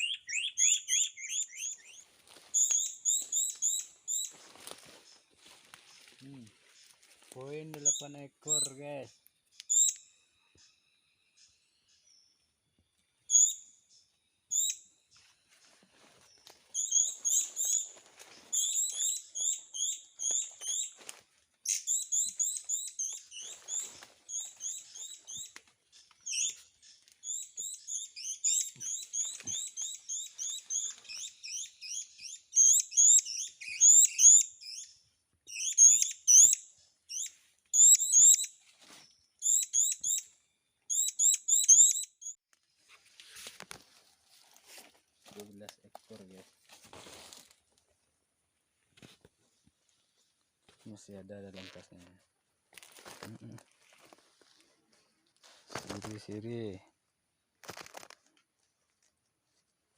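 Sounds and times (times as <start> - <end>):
small bird chirping: 0.0 - 4.4, 7.8 - 15.6, 16.2 - 21.0, 21.6 - 42.4.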